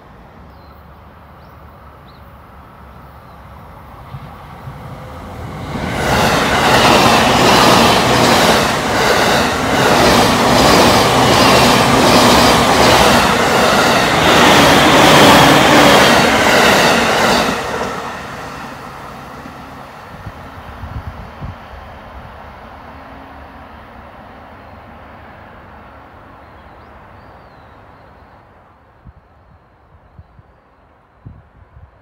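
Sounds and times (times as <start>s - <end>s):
train wheels rushing on rails: 2.8s - 23.5s.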